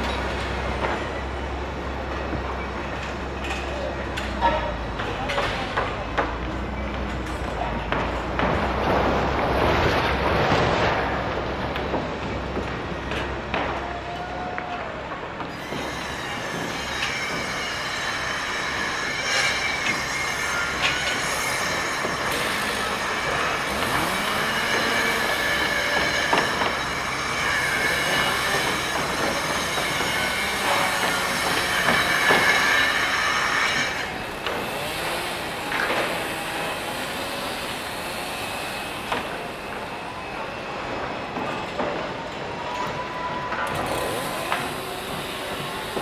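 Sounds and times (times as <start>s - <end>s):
heavy machinery rumbling: 0.0s - 46.0s
high metallic squealing: 15.6s - 41.4s.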